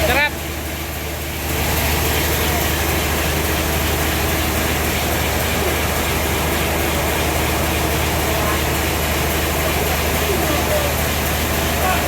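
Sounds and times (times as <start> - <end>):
sawmill machinery humming: 0.0 - 12.0.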